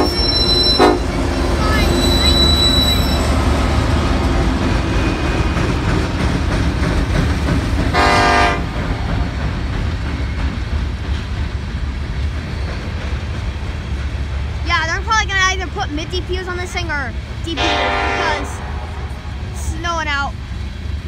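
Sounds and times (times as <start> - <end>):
train horn blast: 0.0 - 5.2, 7.9 - 8.8, 17.6 - 19.6
wheels rumbling on rail: 0.0 - 21.0.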